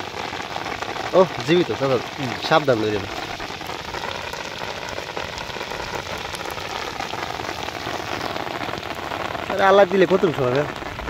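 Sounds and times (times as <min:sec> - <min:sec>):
rain falling on water: 0:00.0 - 0:11.0.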